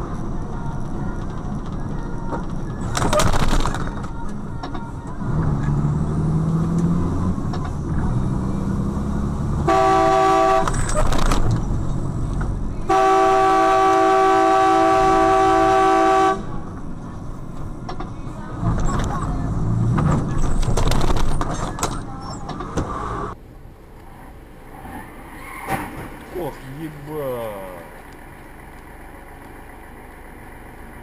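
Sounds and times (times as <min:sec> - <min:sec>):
road and engine noise: 0:00.0 - 0:31.0
car horn blasts: 0:09.6 - 0:10.9, 0:12.9 - 0:16.6.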